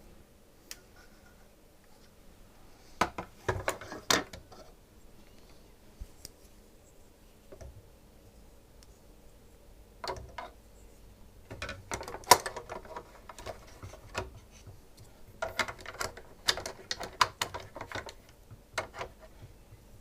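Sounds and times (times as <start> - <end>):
small plastic and metal parts clattering: 11.5 - 14.4, 15.4 - 19.3.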